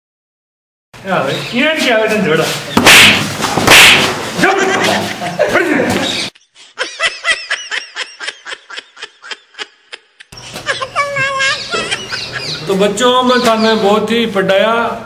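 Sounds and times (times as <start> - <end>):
snickering laugh effect: 4.4 - 5.6, 6.4 - 12.7.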